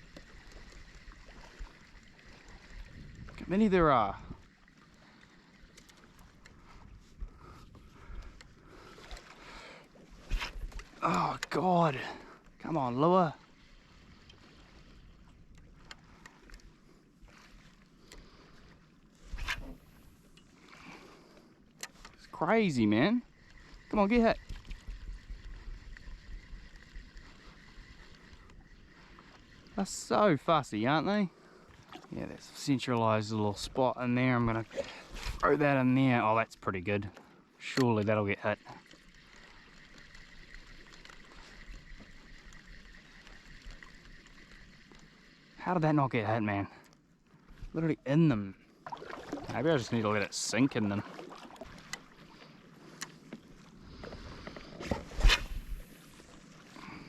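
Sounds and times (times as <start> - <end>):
small ticks: 0.0 - 3.4, 4.4 - 11.6, 13.4 - 16.9, 19.4 - 30.0, 37.0 - 45.6, 51.7 - 54.7
water lapping: 0.0 - 57.0
faint clicks: 4.4 - 11.6, 15.2 - 16.8, 21.3 - 22.3, 37.0 - 45.4, 46.8 - 47.7, 51.6 - 54.7
splash: 48.8 - 50.0, 50.8 - 51.9.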